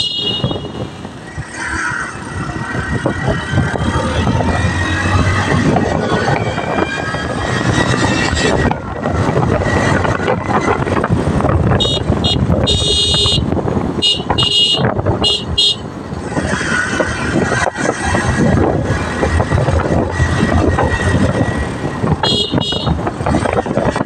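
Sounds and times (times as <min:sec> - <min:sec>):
vehicle horn honking: 0:00.0 - 0:01.0, 0:11.8 - 0:15.9, 0:22.2 - 0:23.0
motorcycle wind and road noise: 0:00.0 - 0:24.0.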